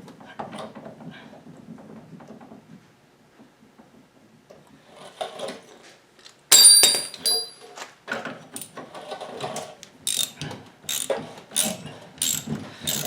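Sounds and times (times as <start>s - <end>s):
metal tools clinking and rattling: 6.5s - 7.6s
ringing metal clang: 6.5s - 7.6s.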